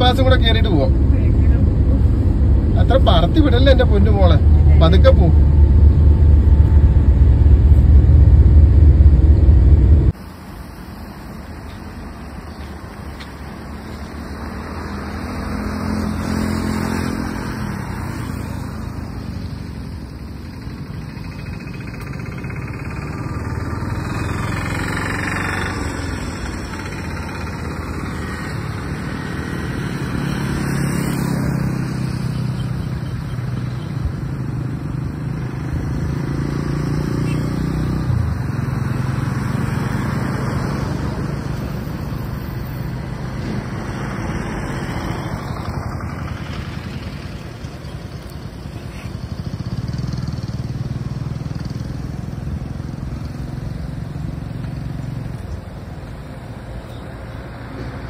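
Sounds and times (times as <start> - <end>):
car engine running: 0.0 - 10.2.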